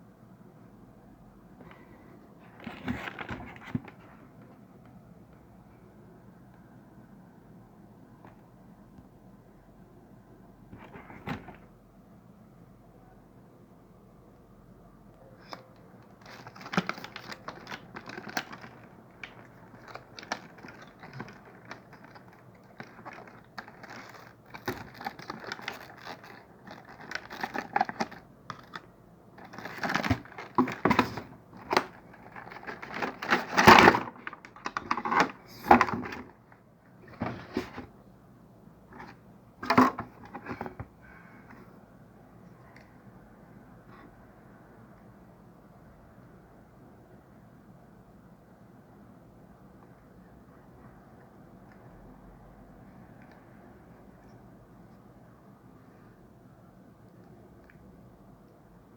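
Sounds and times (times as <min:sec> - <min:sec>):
packaging clicks and rustling: 0:02.4 - 0:04.2, 0:15.4 - 0:36.4, 0:37.0 - 0:37.9, 0:39.0 - 0:40.9.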